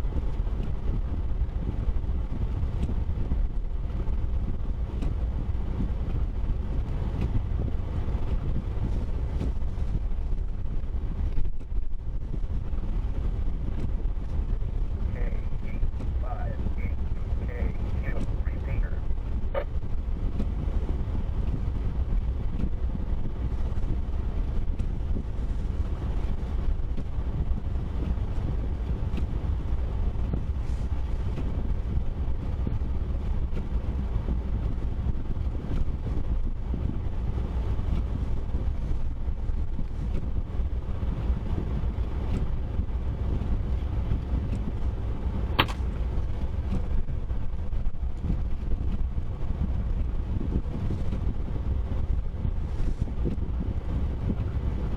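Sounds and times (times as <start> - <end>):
car driving rumble: 0.0 - 54.9
short click: 45.6 - 45.9.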